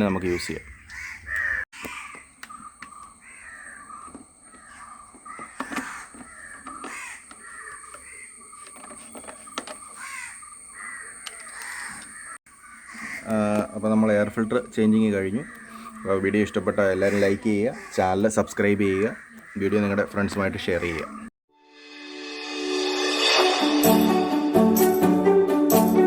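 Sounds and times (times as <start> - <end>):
crows cawing: 0.7 - 8.9, 9.5 - 21.3.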